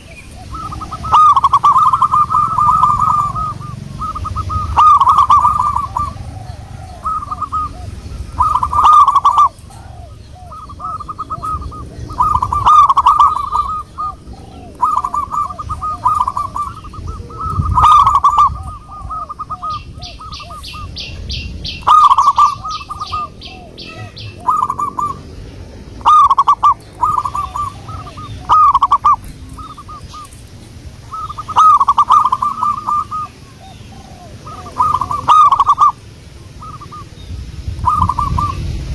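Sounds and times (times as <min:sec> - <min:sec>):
dove cooing: 0:00.0 - 0:37.2, 0:37.8 - 0:38.7.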